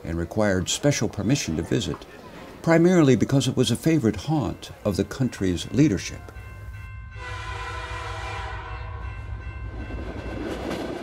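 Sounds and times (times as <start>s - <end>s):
moving train rumble: 3.7s - 11.0s
train whistle: 7.1s - 9.2s.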